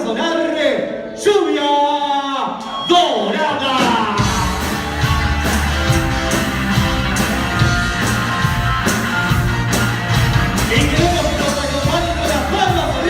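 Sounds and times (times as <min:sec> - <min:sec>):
live cumbia band playing: 0:03.8 - 0:13.0.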